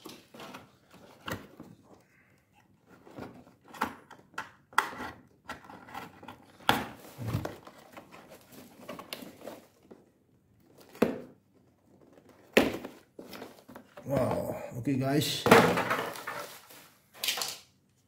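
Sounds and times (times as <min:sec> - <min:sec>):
packaging scraping and rustling: 0:16.0 - 0:17.5.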